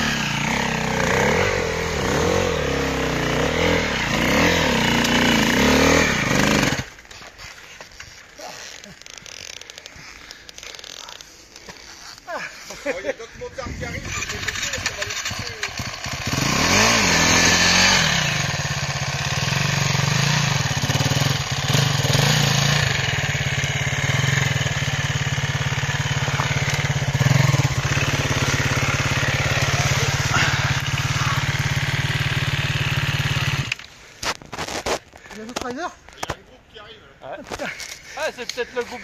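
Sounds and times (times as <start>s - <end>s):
motorcycle engine revving under load: 0.0s - 7.0s, 14.0s - 34.9s.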